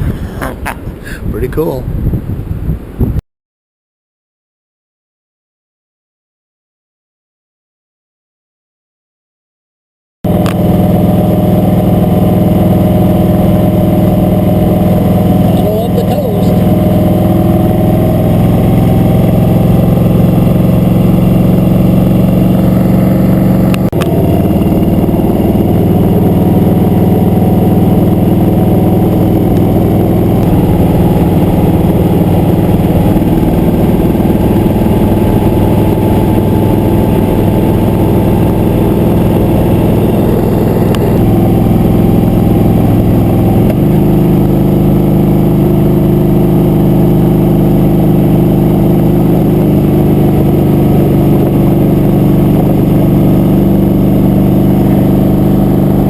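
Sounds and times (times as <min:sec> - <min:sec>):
motorcycle engine running: 0:10.3 - 0:56.0.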